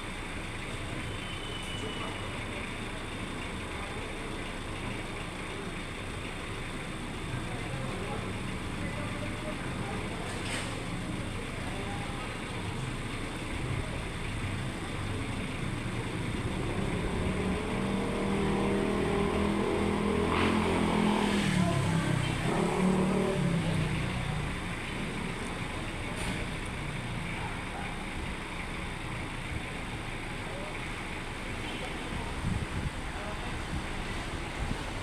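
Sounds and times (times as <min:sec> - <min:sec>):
vehicle engine passing by: 0:15.8 - 0:27.6.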